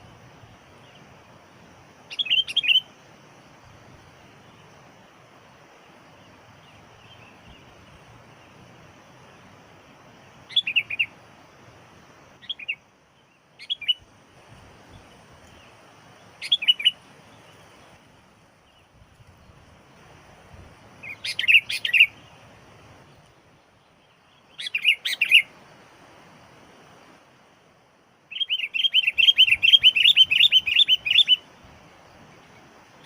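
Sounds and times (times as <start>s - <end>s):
faint steady hiss: 0.0s - 33.0s
bird bubbling chirps: 2.1s - 2.9s, 10.5s - 11.1s, 13.6s - 14.0s, 16.4s - 17.9s, 21.0s - 22.4s, 24.0s - 25.5s, 28.3s - 31.4s.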